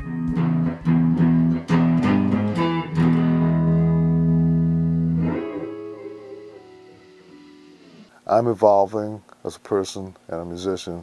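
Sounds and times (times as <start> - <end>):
guitar chords: 0.0 - 8.2.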